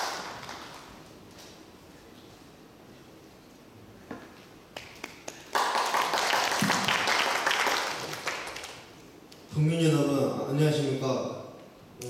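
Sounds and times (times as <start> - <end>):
audience applause: 0.0 - 0.9, 4.8 - 8.8.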